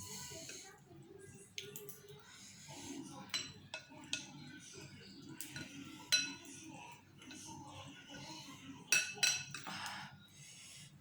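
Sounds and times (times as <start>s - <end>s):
utensils clinking against bowl: 3.2s - 4.8s, 5.4s - 6.6s, 8.9s - 10.0s.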